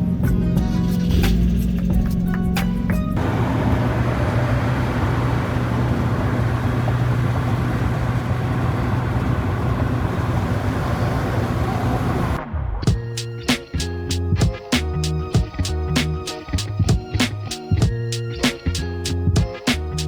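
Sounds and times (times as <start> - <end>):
car engine humming: 1.3 - 12.4
wide noisy wash: 3.2 - 12.4.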